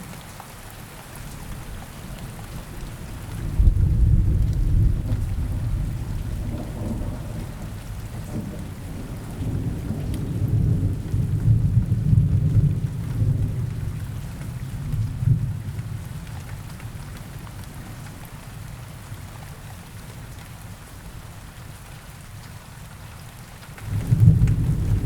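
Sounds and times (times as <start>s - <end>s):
steady rain: 0.0s - 25.0s
low rolling thunder: 2.5s - 16.7s, 23.8s - 25.0s.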